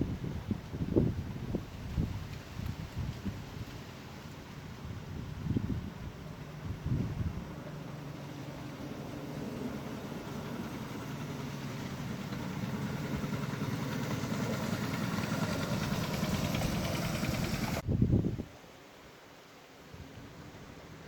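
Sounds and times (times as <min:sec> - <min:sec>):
small petrol engine running: 0:09.3 - 0:17.8.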